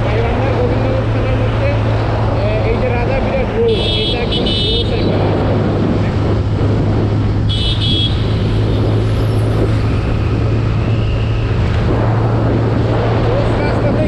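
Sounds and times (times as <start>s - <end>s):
road noise: 0.0s - 14.0s
wind noise: 0.0s - 14.0s
horn beeping: 3.6s - 5.1s, 7.5s - 8.5s.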